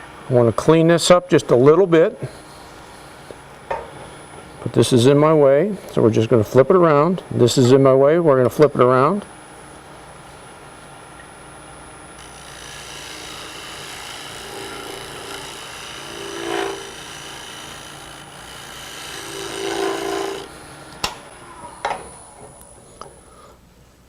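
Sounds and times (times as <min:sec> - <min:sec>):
gouge scraping wood on lathe: 0:12.2 - 0:20.5.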